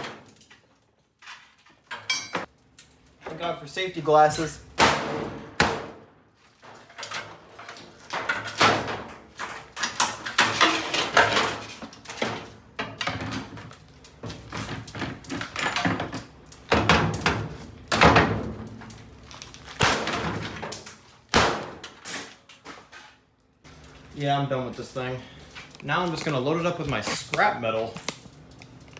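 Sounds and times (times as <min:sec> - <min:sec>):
blows banging on washing machine: 0:14.6 - 0:18.6.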